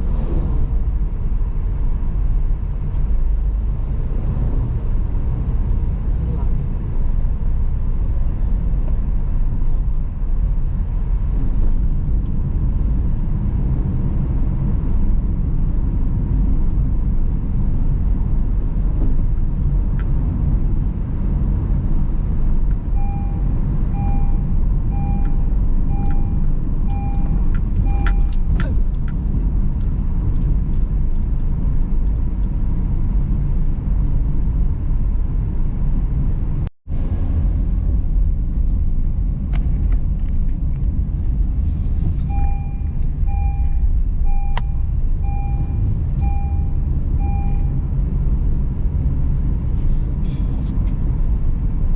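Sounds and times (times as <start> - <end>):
car engine and tyres rumbling: 0.0 - 51.9
electronic beeps: 23.0 - 28.6, 42.3 - 47.8.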